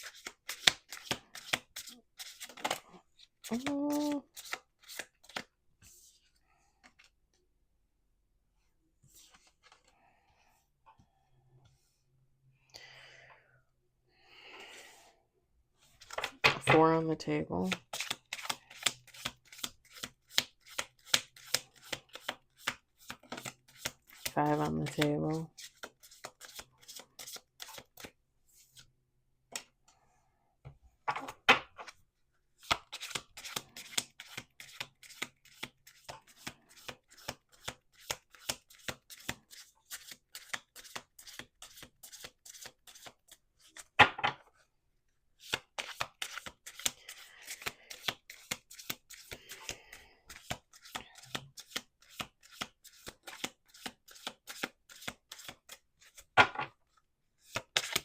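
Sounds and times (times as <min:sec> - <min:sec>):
cards being shuffled: 0:00.0 - 0:05.5, 0:16.0 - 0:16.4, 0:17.6 - 0:28.2, 0:32.6 - 0:43.9, 0:45.4 - 0:56.3, 0:57.4 - 0:58.0.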